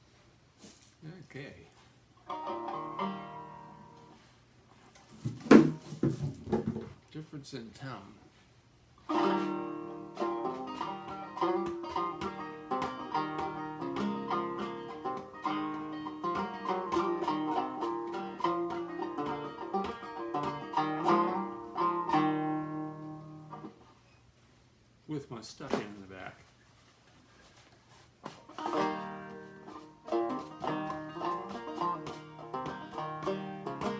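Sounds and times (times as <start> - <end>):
banjo tune picked: 2.2 - 4.3, 9.0 - 23.8, 28.3 - 33.9.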